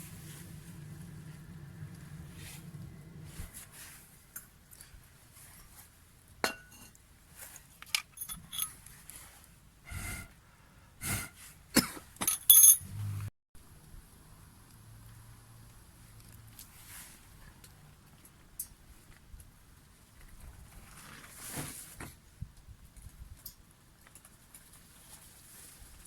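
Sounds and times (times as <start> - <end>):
steady low hum: 0.0 - 4.2
hard objects clinking and knocking: 7.9 - 8.8, 12.2 - 12.8.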